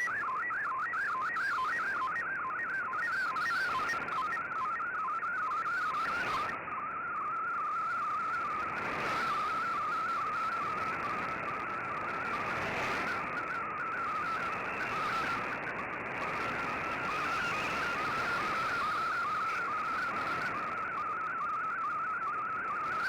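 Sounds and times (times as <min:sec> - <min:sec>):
radio hiss: 0:05.3 - 0:06.6, 0:07.4 - 0:22.0.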